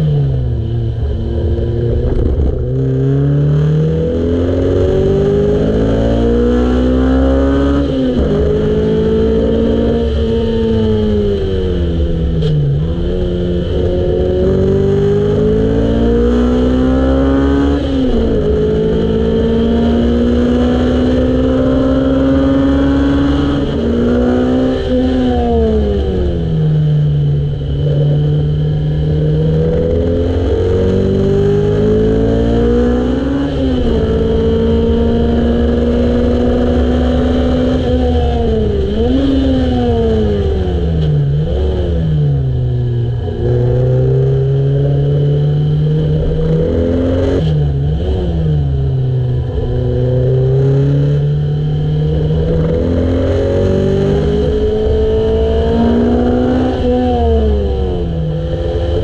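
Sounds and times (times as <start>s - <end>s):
race car engine revving: 0.0s - 59.0s
road and wind rumble: 0.0s - 59.0s.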